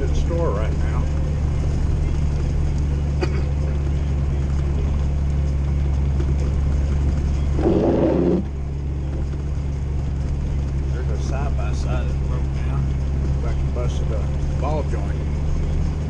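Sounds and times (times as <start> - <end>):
car engine and tyres droning: 0.0 - 16.0
rough noise: 7.4 - 8.7.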